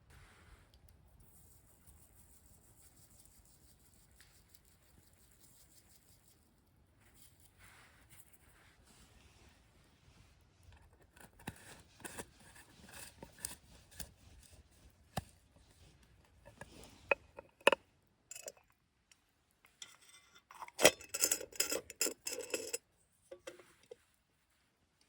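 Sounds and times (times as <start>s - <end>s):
camp gear clicks and scrapes: 15.2s - 18.7s, 19.8s - 24.0s
clattering and rustling: 19.8s - 24.1s.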